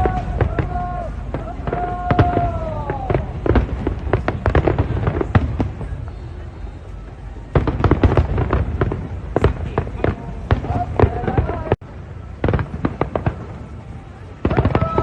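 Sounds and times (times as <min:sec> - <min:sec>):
falling firework whistle: 0:00.0 - 0:04.8, 0:14.4 - 0:15.0
fireworks bangs and crackles: 0:00.0 - 0:15.0.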